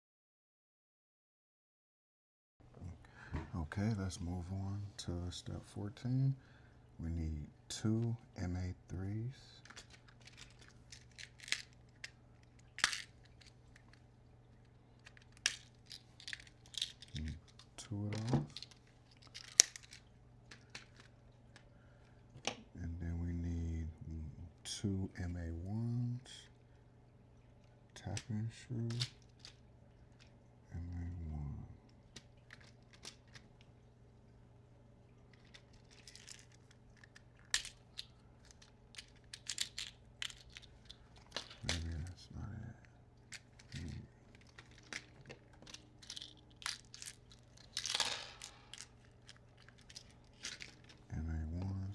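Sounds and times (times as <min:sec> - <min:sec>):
light rustling of parts: 0:09.4 - 0:22.7, 0:28.0 - 0:30.4, 0:31.8 - 0:33.7, 0:35.2 - 0:51.9
small parts clicking: 0:09.6 - 0:21.7, 0:28.0 - 0:29.6, 0:32.2 - 0:33.6, 0:35.3 - 0:42.1, 0:43.3 - 0:51.1.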